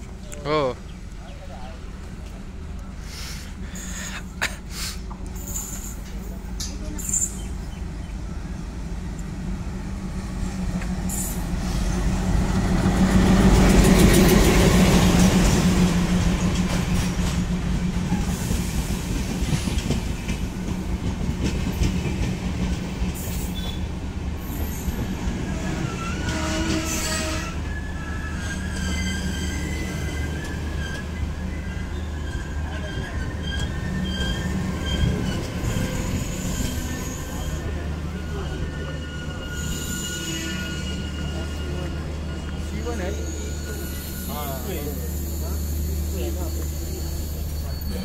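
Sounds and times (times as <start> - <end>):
train wheels rumbling on rail: 0.0 - 48.0
wheel squeal: 24.4 - 48.0.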